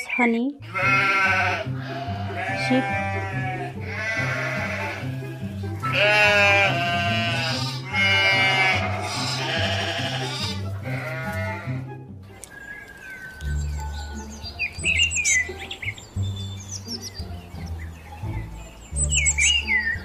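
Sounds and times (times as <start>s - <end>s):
background music with bass line: 0.2s - 20.0s
sheep bleating: 0.6s - 11.9s.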